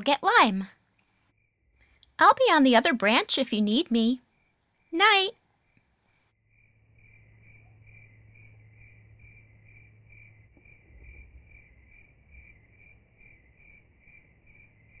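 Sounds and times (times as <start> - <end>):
crickets chirping: 3.9 - 15.0
low hum: 6.5 - 15.0.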